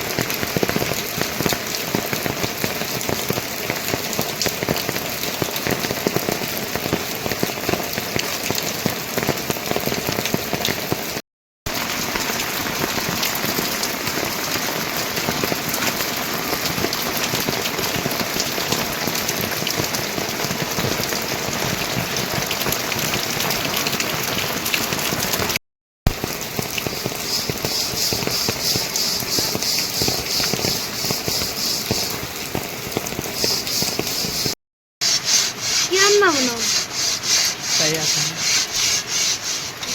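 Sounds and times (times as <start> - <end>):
steady rain falling: 0.0 - 39.9
high rapidly pulsing sound: 26.9 - 32.2, 33.4 - 39.8.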